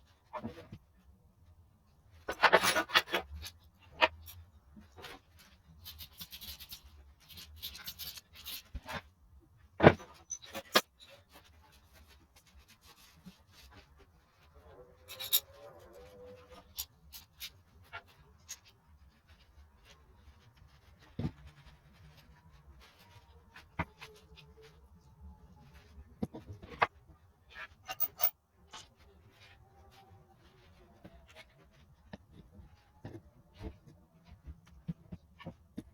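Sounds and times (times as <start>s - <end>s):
soft rubbing: 11.1s - 35.9s
tools clicking and knocking: 15.1s - 15.6s, 27.7s - 28.9s.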